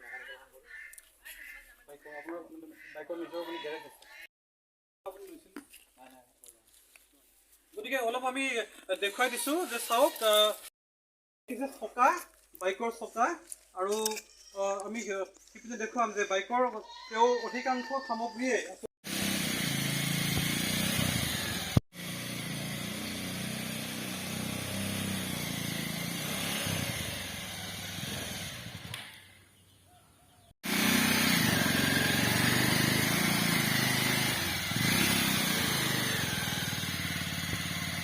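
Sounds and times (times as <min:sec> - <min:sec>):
small motorcycle engine running: 0:19.1 - 0:29.2, 0:30.6 - 0:38.0.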